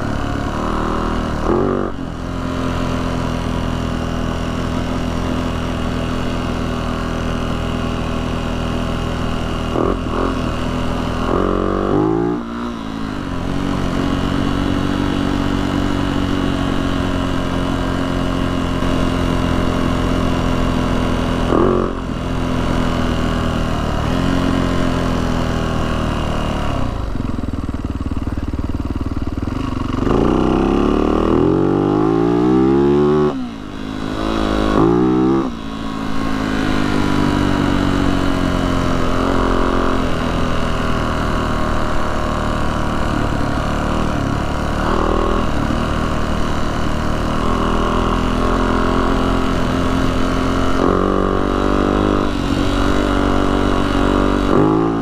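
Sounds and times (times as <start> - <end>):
dirt bike engine revving: 0.0 - 26.9, 29.5 - 55.0.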